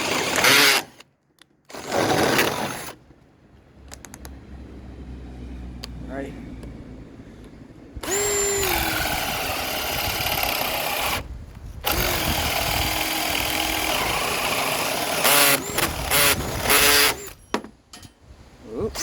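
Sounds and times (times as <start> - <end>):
cordless drill whining: 0.0 - 1.1, 1.7 - 3.0, 8.0 - 17.4
drill trigger blips: 8.0 - 17.4.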